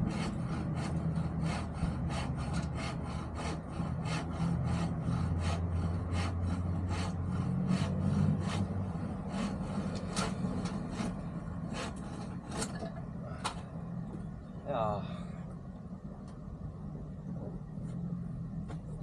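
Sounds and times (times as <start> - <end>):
hand tool rasping on wood: 0.0 - 12.7
steady low hum: 0.0 - 19.0.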